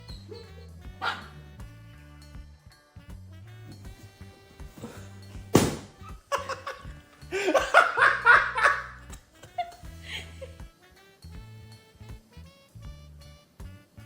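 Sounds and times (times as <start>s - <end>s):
background music: 0.0s - 14.0s
person laughing: 4.8s - 10.8s
sharp knock: 5.5s - 6.0s.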